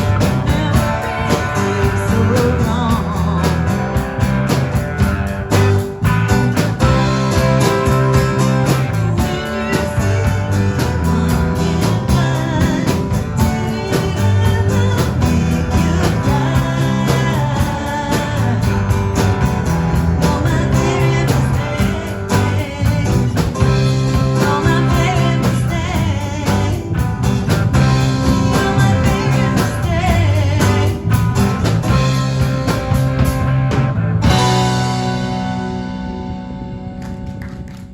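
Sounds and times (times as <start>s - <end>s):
lead vocal singing: 0.0s - 3.8s, 7.7s - 31.2s
bass guitar: 0.0s - 37.9s
drums: 0.0s - 37.9s
electric guitar: 0.0s - 37.9s.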